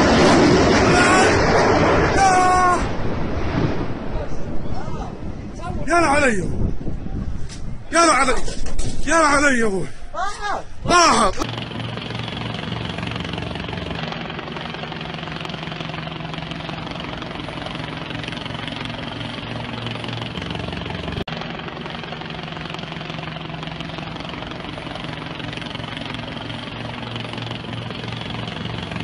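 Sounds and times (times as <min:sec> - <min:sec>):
engine drone: 0:00.0 - 0:05.6, 0:10.8 - 0:29.0.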